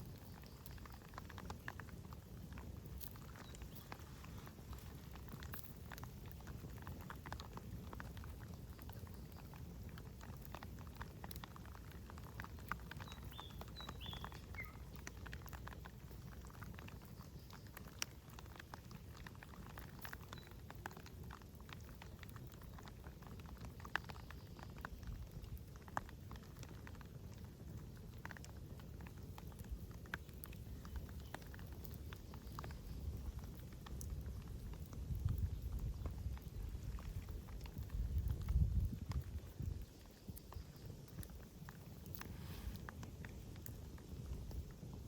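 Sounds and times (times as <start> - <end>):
campfire crackling and popping: 0.0 - 45.0
bird chirping: 13.0 - 15.2.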